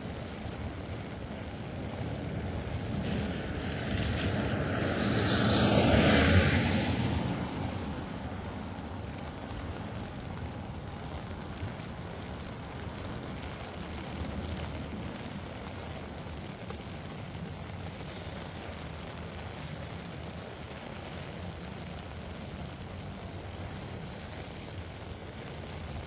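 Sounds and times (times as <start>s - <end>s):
car tyres hissing on wet road: 0.0s - 26.0s
steady rain: 0.0s - 26.0s.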